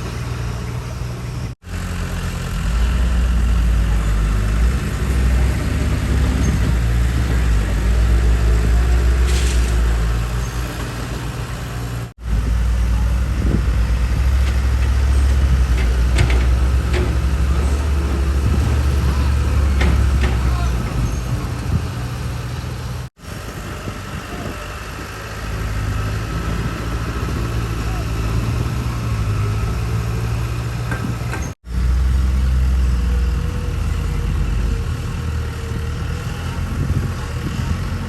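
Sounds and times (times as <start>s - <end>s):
heavy diesel engine droning: 0.0s - 38.0s.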